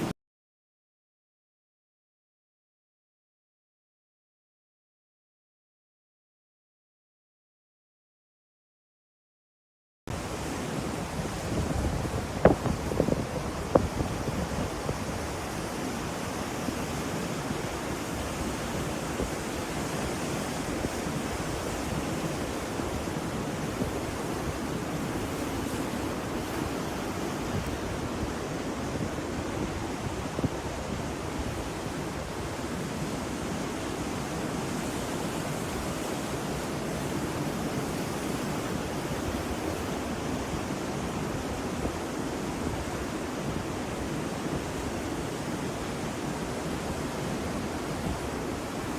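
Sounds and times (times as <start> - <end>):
ocean surf: 10.1 - 48.9.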